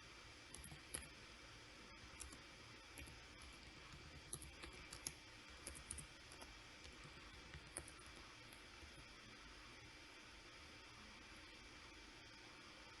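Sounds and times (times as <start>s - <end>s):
low background hiss: 0.0s - 13.0s
mouse and keyboard clicking: 0.5s - 1.1s, 2.1s - 9.0s.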